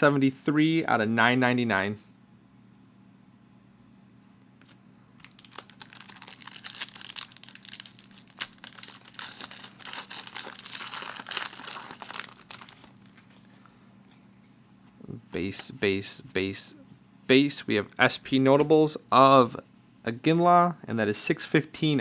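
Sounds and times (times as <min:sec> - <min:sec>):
card pack wrapper crinkling and tearing: 0:05.2 - 0:13.5.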